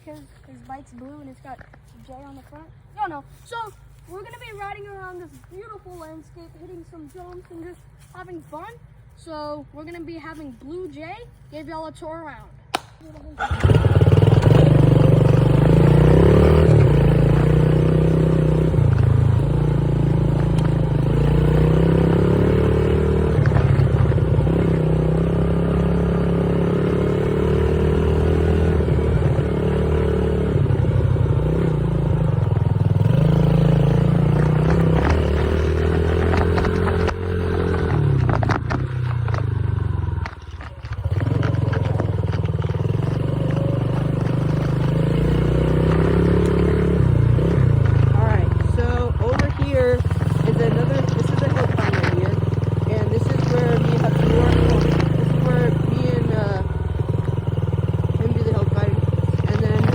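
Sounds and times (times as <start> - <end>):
dirt bike motor revving: 13.3 - 59.9.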